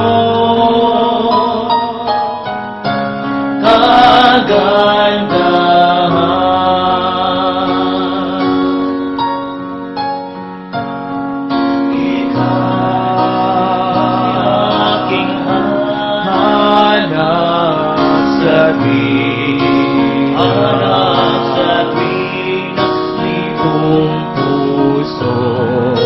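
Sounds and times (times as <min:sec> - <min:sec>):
keyboard chords: 0:00.0 - 0:26.0
person singing long notes: 0:11.9 - 0:26.0.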